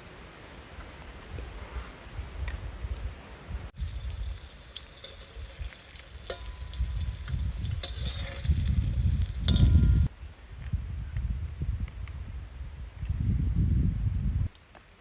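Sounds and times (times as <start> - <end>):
food sizzling in a pan: 3.8 - 10.1.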